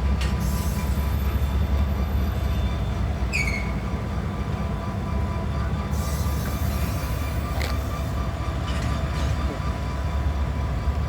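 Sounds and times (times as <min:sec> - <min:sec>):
diesel locomotives rumbling: 0:00.0 - 0:11.0.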